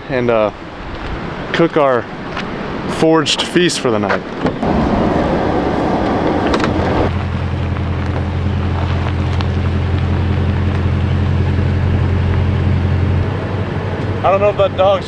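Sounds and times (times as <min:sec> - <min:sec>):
rushing noise: 0:04.6 - 0:15.0
truck engine drone: 0:04.6 - 0:15.0.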